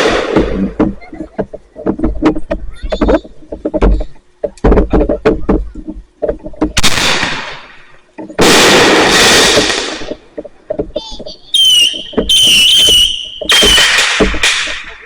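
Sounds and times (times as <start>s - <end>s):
firework burst with hiss: 0.0s - 0.8s, 8.4s - 10.2s, 11.8s - 15.0s
dense firework crackle: 0.0s - 1.2s, 6.8s - 10.4s, 11.2s - 15.0s
fireworks popping: 0.0s - 15.0s.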